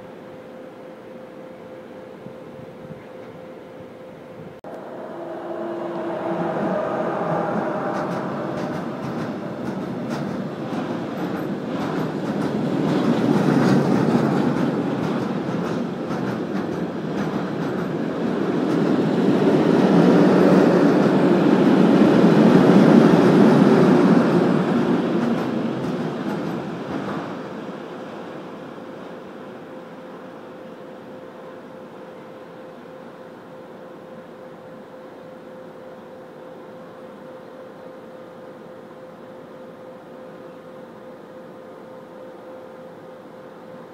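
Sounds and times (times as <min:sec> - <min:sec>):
faint steady tones: 0:04.6 - 0:12.4
freight train wheels rumbling: 0:04.6 - 0:32.2.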